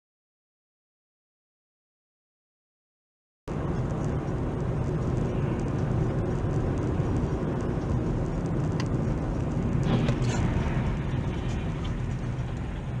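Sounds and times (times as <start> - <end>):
car engine and road noise: 3.5 - 13.0.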